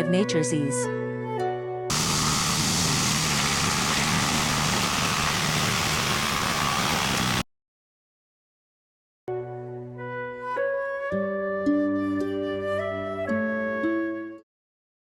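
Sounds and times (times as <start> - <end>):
lawn mower engine running: 1.9 - 7.4.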